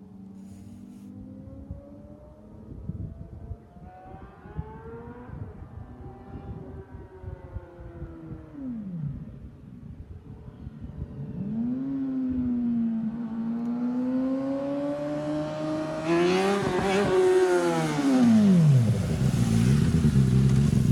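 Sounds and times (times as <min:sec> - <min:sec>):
motorcycle engine passing by: 0:11.2 - 0:20.9.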